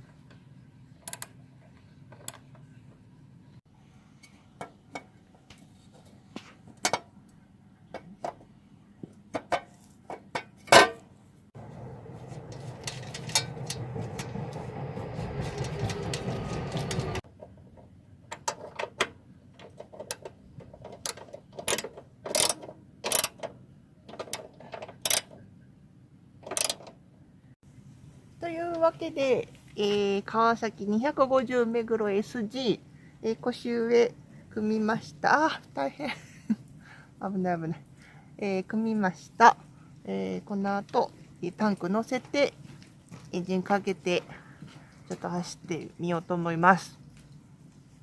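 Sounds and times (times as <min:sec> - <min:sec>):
metal tool clicks and knocks: 0:19.7 - 0:23.5, 0:24.1 - 0:25.4, 0:26.4 - 0:26.9.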